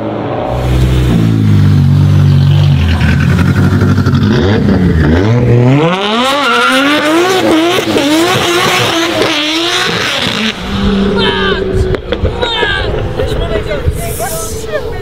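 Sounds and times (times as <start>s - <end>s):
car engine revving: 0.0s - 13.9s.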